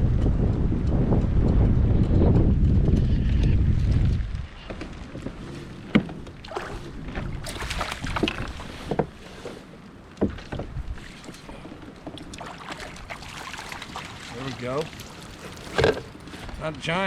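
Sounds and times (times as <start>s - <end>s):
knocks and clicks around kayak: 0.0s - 17.0s
water splashing: 4.8s - 17.0s.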